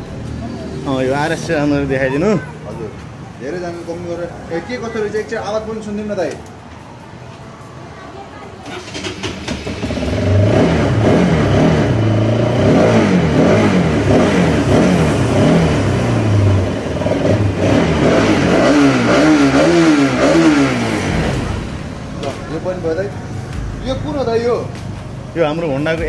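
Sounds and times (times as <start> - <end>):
motorcycle engine revving: 8.6 - 22.7.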